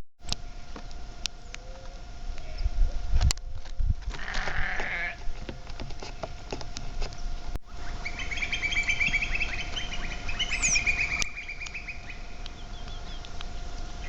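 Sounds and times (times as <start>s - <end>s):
flock of small birds chirping: 4.2s - 14.0s.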